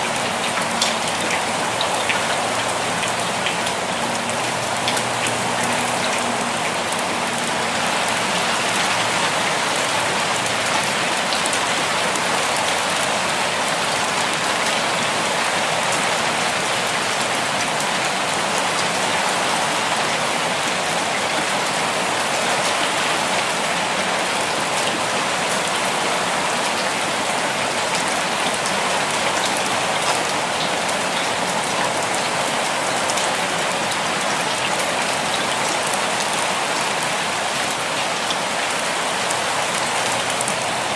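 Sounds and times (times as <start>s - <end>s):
raindrops ticking: 0.1s - 13.3s.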